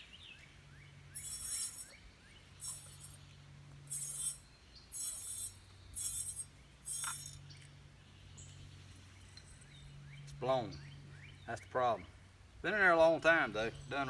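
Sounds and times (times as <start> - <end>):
broken filament rattling in glass bulb: 1.2 - 1.9, 2.6 - 3.2, 3.9 - 4.4, 5.0 - 7.4.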